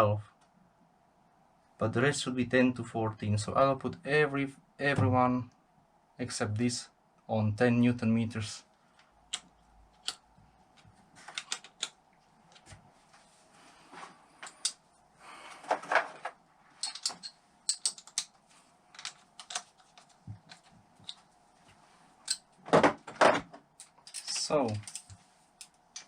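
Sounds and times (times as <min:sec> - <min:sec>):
hand tools clicking and tapping: 0:16.8 - 0:21.2.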